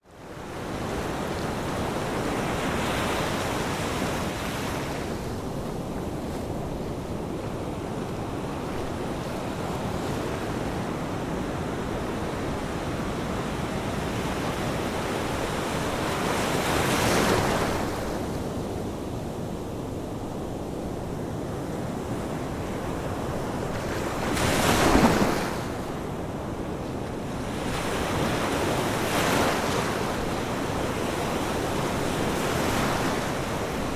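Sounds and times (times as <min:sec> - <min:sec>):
ocean waves breaking: 0:22.8 - 0:33.9.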